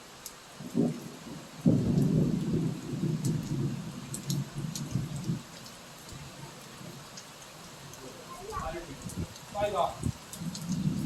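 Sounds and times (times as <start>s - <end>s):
heavy rain hissing: 0.0s - 11.0s
deep rumbling thunder: 0.6s - 5.4s, 10.0s - 11.0s.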